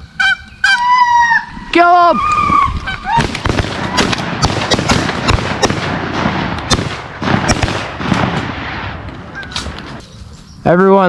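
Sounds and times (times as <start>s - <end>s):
rapid overlapping shotgun shots: 3.2s - 10.0s.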